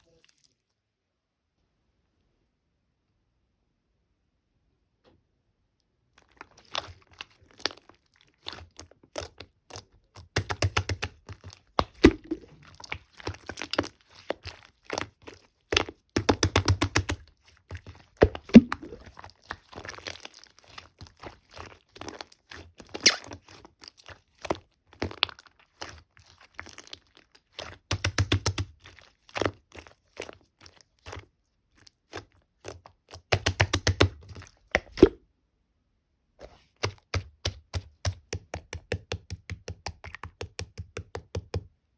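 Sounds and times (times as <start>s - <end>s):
hands squishing slime: 6.2s - 35.2s, 36.4s - 41.8s
slime clicking and popping: 8.4s - 15.1s, 15.7s - 21.4s, 22.0s - 23.7s, 27.5s - 29.6s, 32.1s - 35.2s, 36.8s - 41.7s.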